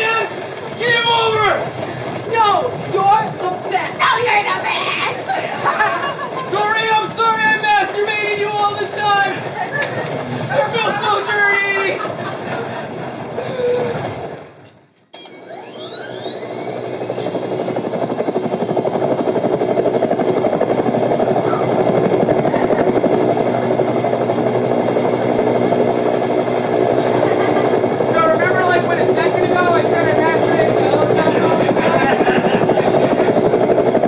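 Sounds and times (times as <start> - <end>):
helicopter: 0.0 - 34.0
helicopter rotor beat: 0.0 - 34.0
turbine whine rising in pitch: 0.0 - 34.0.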